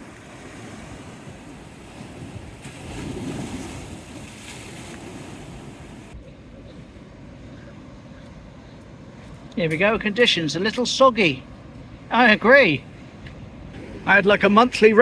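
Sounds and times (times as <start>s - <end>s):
wind on microphone: 0.0s - 8.3s, 12.8s - 15.0s
rough sea waves breaking: 0.0s - 15.0s.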